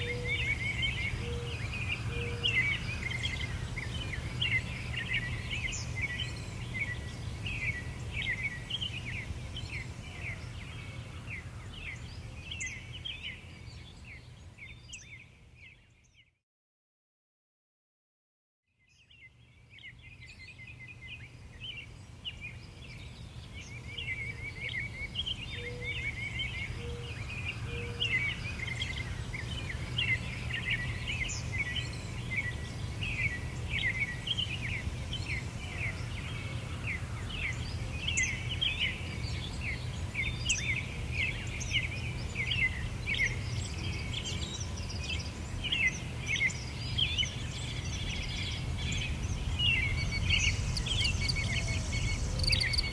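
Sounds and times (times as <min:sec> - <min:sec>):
songbirds chirping and trilling: 0:00.0 - 0:16.4, 0:18.9 - 0:52.9
steady low rumble: 0:48.6 - 0:52.9.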